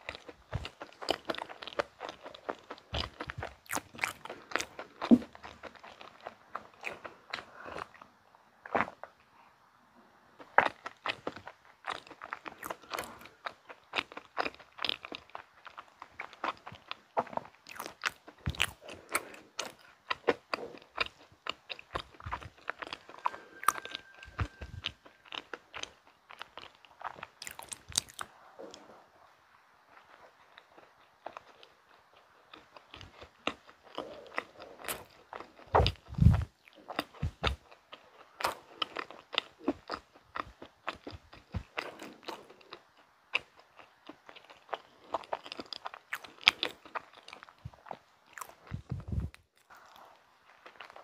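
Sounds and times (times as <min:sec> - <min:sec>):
chewing soft cake: 0:00.0 - 0:51.0.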